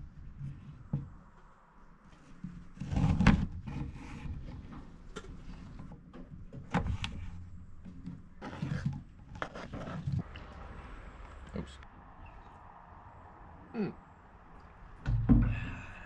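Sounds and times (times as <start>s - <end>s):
rustling and clattering: 0.0s - 10.3s.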